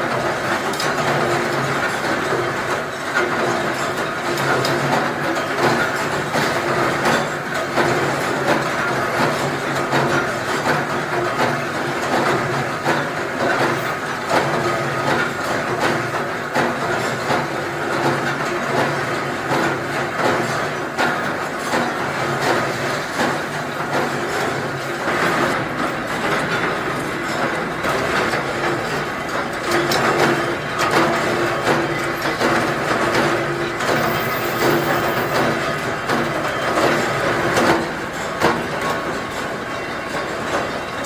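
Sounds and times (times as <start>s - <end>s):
machinery hum: 20.0s - 41.0s.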